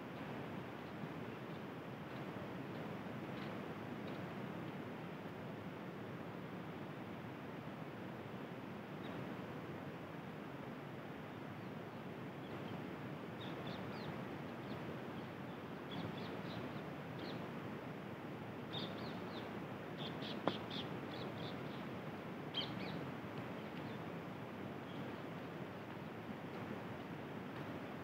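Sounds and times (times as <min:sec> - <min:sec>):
steady outdoor hiss: 0:00.0 - 0:28.0
small birds chirping: 0:13.4 - 0:17.4, 0:18.6 - 0:24.1.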